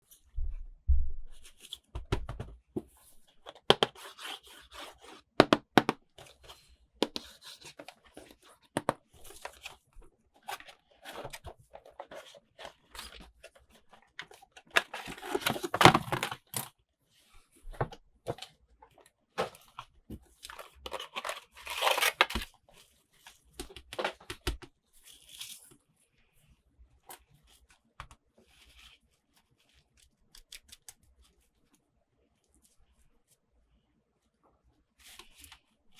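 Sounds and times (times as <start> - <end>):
packaging tearing and crinkling: 20.6 - 22.5.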